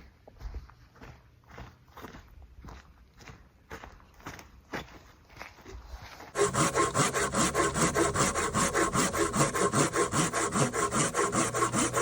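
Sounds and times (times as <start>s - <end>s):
hand saw cutting wood: 6.3s - 12.0s.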